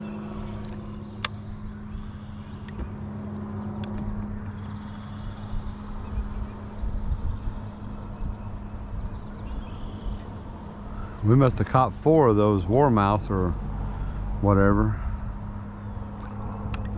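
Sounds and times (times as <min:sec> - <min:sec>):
motor humming: 0:00.0 - 0:05.7.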